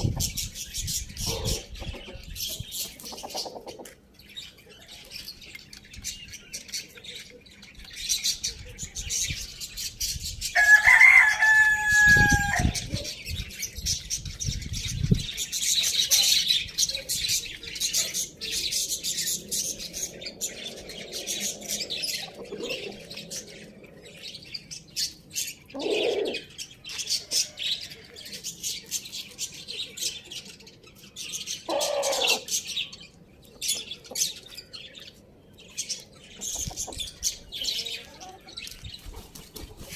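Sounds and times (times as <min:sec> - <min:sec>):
small birds chirping: 0:00.0 - 0:39.9
rooster crowing: 0:10.6 - 0:12.8.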